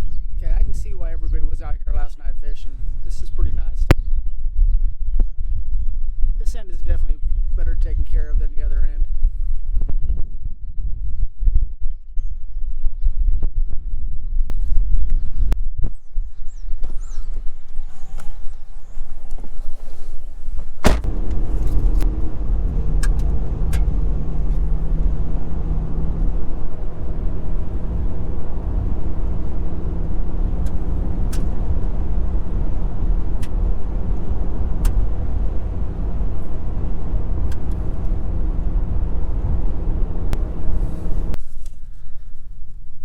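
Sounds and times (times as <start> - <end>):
truck engine and road rumble: 0.0 - 3.9, 17.0 - 43.0
sharp knock: 20.8 - 21.1.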